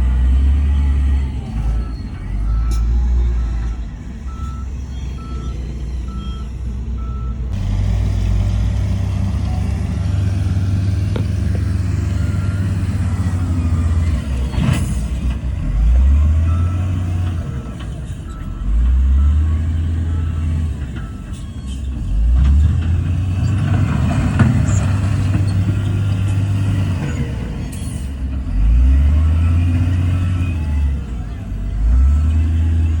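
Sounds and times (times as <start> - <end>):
heavy diesel machinery running: 0.0 - 33.0
reversing alarm beeping: 0.6 - 7.5.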